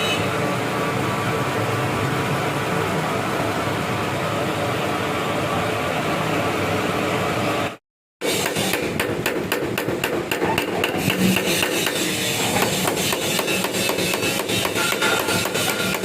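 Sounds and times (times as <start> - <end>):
rapid hammer blows: 8.2 - 16.0.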